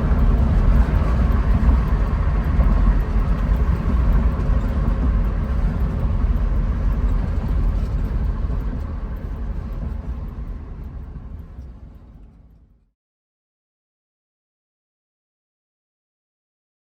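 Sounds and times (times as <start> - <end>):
car engine exhaust rumble: 0.0 - 12.8.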